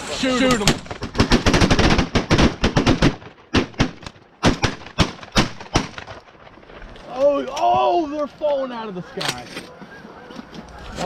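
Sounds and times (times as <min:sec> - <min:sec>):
shotgun shots: 0:00.4 - 0:06.2.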